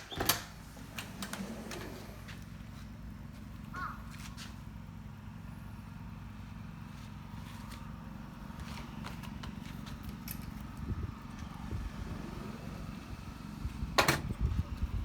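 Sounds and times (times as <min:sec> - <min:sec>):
wind buffeting microphone: 0:10.6 - 0:15.0.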